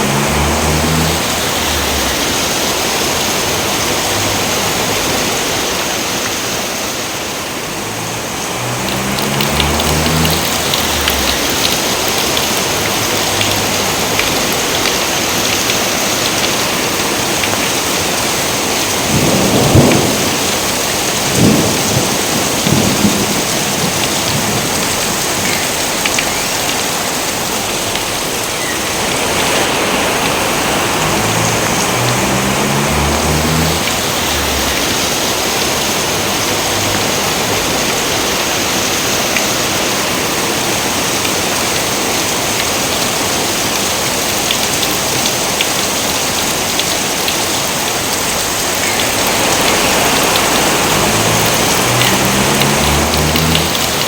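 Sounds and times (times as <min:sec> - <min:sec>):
rain falling: 0:00.0 - 0:54.0
thunder: 0:19.0 - 0:24.8.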